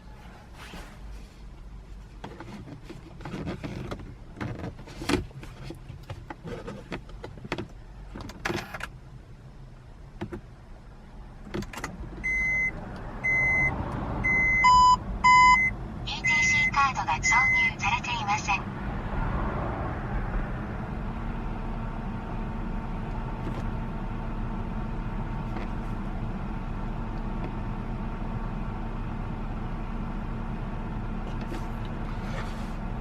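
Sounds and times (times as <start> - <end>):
car warning chime beeping: 12.2 - 17.9
lower warning tone: 12.2 - 18.3.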